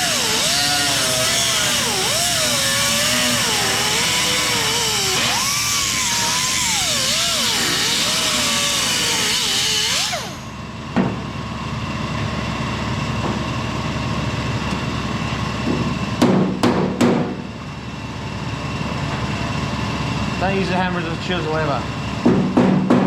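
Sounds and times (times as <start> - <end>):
angle grinder cutting steel: 0.0 - 10.5.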